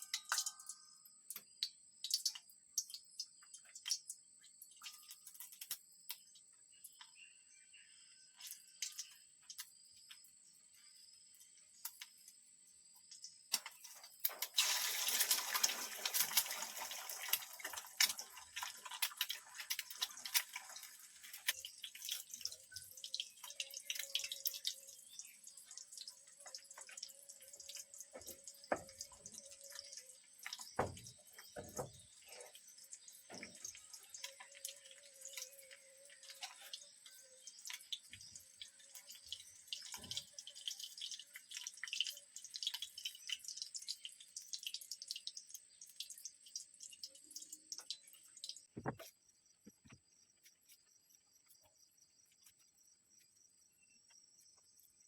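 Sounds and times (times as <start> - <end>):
water dripping and splashing: 0.0 - 7.1, 8.4 - 10.3, 13.0 - 49.2
dull knocks: 48.8 - 49.0.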